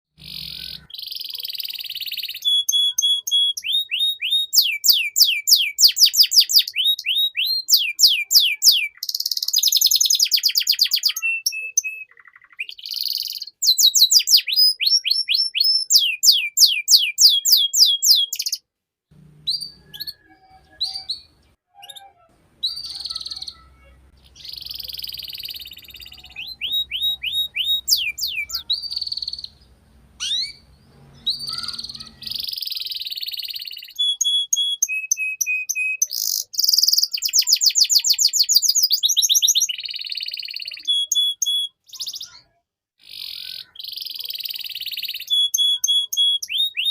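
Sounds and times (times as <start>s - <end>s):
canary singing trills: 0.2s - 46.9s
faint low hum: 19.1s - 21.6s, 22.2s - 32.5s.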